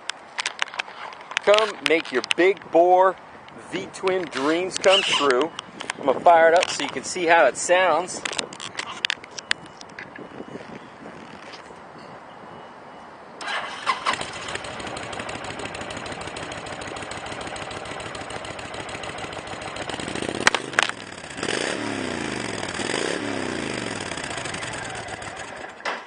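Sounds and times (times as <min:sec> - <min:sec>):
motorcycle engine idling and revving: 0:13.4 - 0:26.0.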